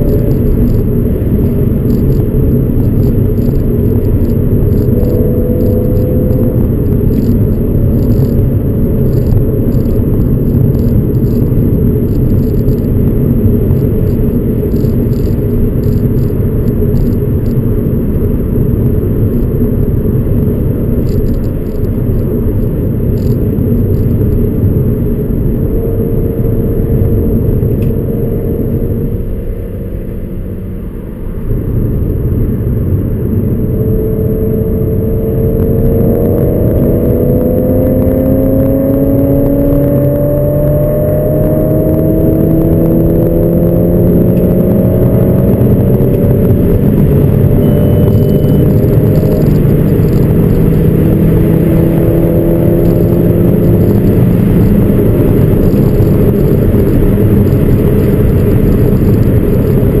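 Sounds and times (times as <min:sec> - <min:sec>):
car engine accelerating hard: 0:00.0 - 1:00.0.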